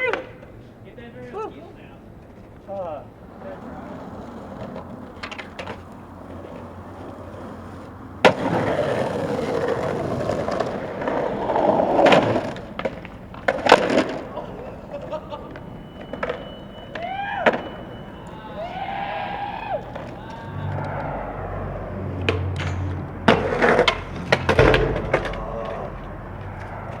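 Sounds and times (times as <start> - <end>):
skateboard clacking on ground: 0.0 - 0.7, 1.6 - 27.0
skateboard wheels rolling: 0.0 - 27.0
skateboard snapping: 4.1 - 14.4, 22.2 - 27.0.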